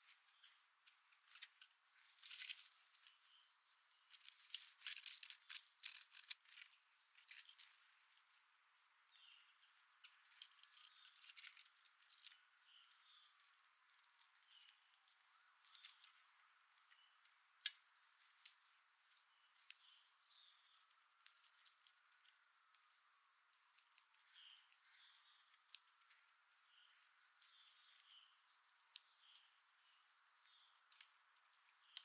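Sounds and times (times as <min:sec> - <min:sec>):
songbirds chirping: 0:00.0 - 0:32.0.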